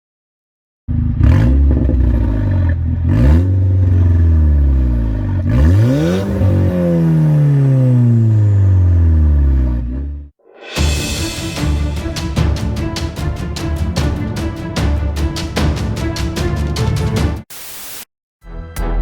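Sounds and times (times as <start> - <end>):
car engine revving: 0.9 - 10.4.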